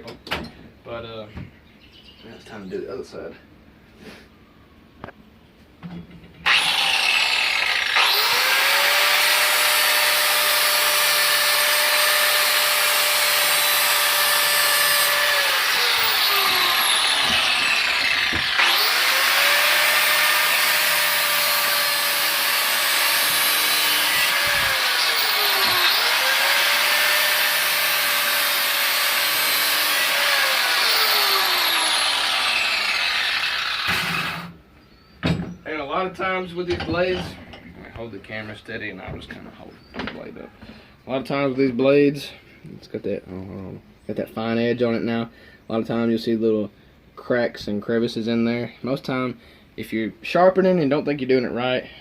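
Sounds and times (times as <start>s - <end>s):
angle grinder grinding metal: 6.4s - 34.6s.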